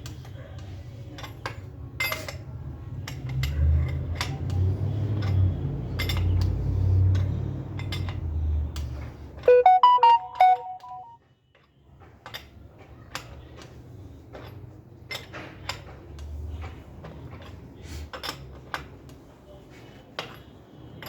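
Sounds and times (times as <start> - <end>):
phone electronic tune beeps: 9.5 - 11.2.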